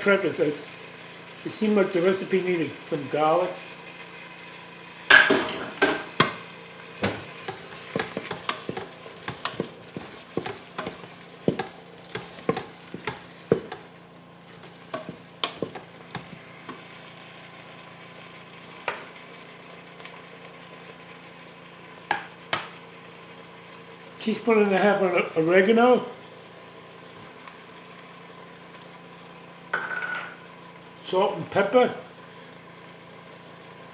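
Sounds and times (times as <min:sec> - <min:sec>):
spoon knocking and scraping pot: 0:07.0 - 0:13.9, 0:14.6 - 0:16.4.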